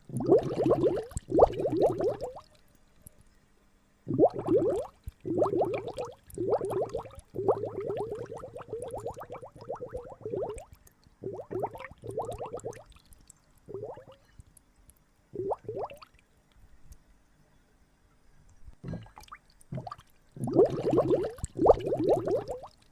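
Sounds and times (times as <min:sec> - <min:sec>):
water gurgling and bubbling: 0:00.0 - 0:02.4, 0:04.1 - 0:13.0, 0:13.7 - 0:14.2, 0:15.4 - 0:16.1, 0:18.9 - 0:22.8.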